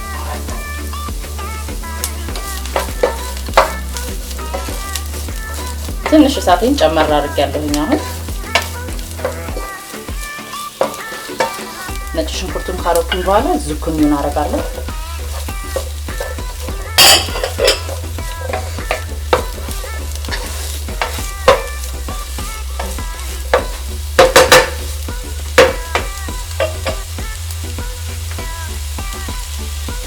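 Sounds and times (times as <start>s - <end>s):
vegetables sizzling in a frying pan: 0.0s - 30.0s
utensil knocking against pan: 2.3s - 9.8s, 10.8s - 27.4s.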